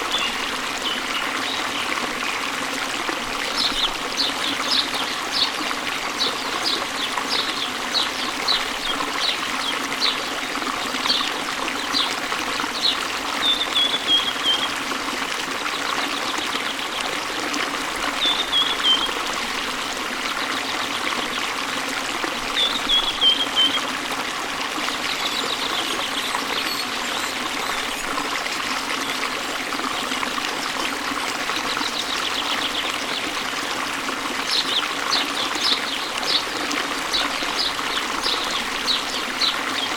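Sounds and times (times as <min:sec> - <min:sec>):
stream water running: 0:00.0 - 0:39.9
birds chirping: 0:34.5 - 0:39.9.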